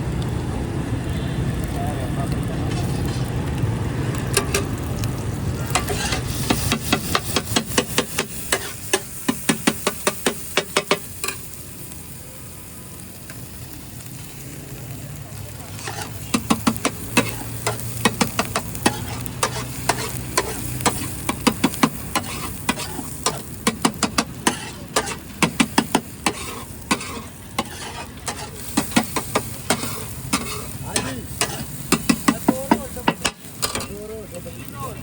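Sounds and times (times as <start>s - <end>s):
food sizzling in oil: 0.1s - 35.0s
metal spatula scraping a griddle: 2.7s - 3.3s, 5.6s - 11.5s, 15.7s - 34.0s.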